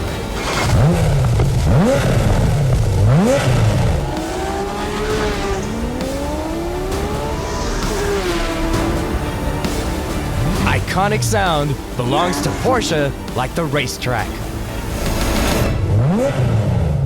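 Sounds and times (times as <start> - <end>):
sports car engine revving: 0.0 - 13.5.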